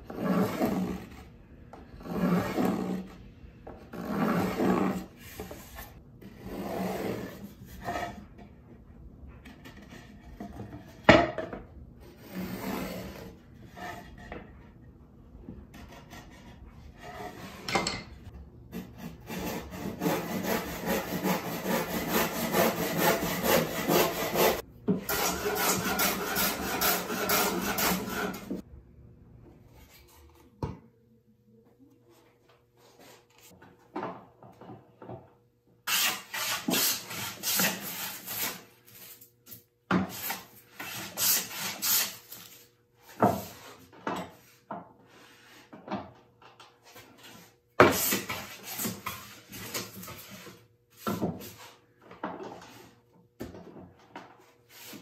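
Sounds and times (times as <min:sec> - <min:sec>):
hand tool shaving wooden board: 0:19.2 - 0:28.6.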